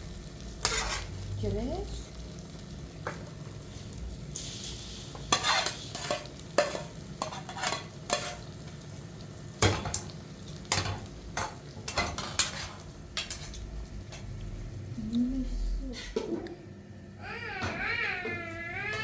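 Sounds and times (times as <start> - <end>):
utensil scraping a cooking pot: 0.6 - 1.2, 4.4 - 8.5, 11.9 - 13.6.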